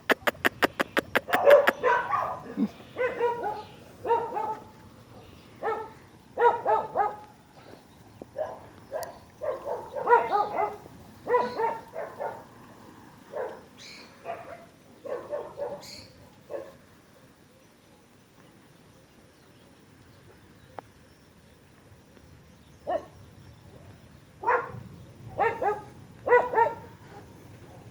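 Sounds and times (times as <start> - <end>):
dog barking: 1.2 - 7.3, 8.4 - 12.5, 13.3 - 15.9, 16.5 - 16.8, 22.9 - 23.1, 24.4 - 27.9.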